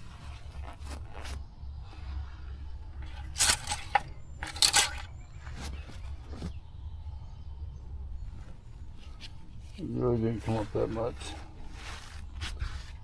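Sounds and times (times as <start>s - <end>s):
steady low hum: 0.0s - 13.0s
dipstick scraping in tube: 3.0s - 5.1s.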